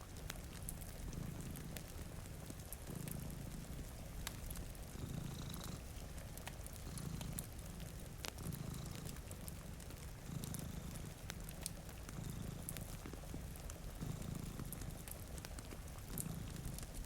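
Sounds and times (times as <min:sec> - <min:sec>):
cat purring: 0:00.0 - 0:17.0
wood fire crackling: 0:00.0 - 0:17.0.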